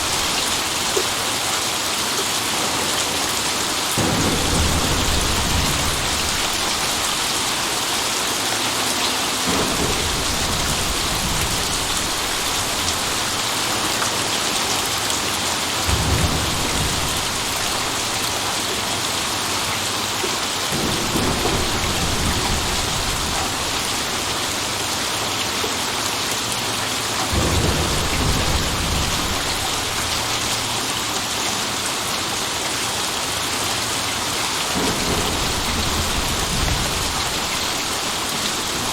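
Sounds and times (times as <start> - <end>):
thunder rumbling: 0.0 - 8.6, 9.4 - 14.6, 15.7 - 19.2, 20.7 - 24.9, 27.3 - 31.5, 34.6 - 38.9
heavy rain falling: 0.0 - 38.9.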